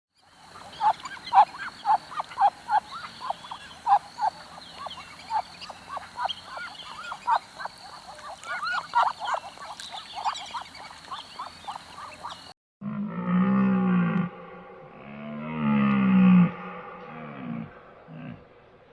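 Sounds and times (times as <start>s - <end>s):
ducks quacking: 0.3s - 12.5s.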